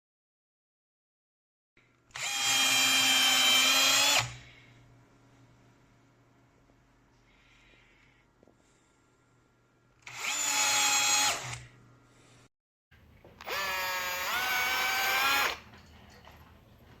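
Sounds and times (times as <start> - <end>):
cordless drill motor whining: 2.1 - 4.5, 10.0 - 11.7, 13.4 - 15.6.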